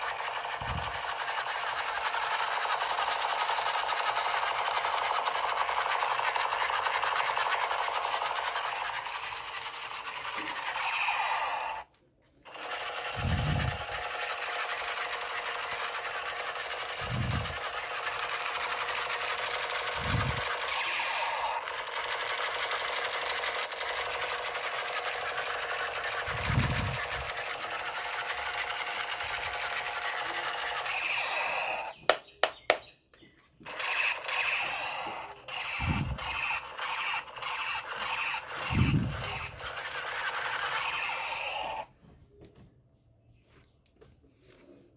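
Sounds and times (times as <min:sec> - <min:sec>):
toy gun mechanical buzzing: 0:00.0 - 0:11.9, 0:12.5 - 0:32.8, 0:33.6 - 0:41.9
sharp clicks: 0:32.0 - 0:32.9.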